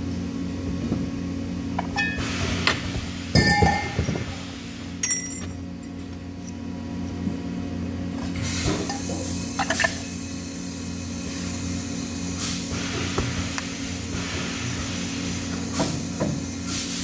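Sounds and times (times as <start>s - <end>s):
steady low hum: 0.0s - 16.7s
metal parts clinking: 5.0s - 6.0s.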